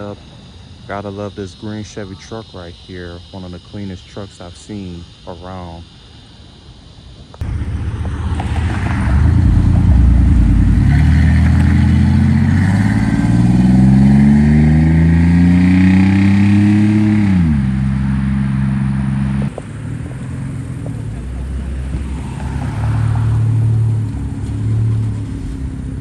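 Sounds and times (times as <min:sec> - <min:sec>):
car engine accelerating hard: 0:07.4 - 0:26.0.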